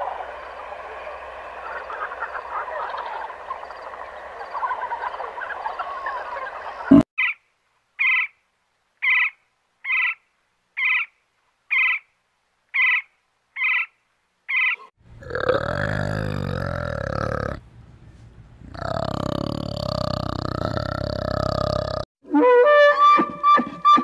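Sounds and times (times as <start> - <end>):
woodpecker calling: 6.6 - 7.4, 8.0 - 8.4, 9.0 - 10.2, 10.8 - 11.1, 11.7 - 12.1, 12.7 - 14.9.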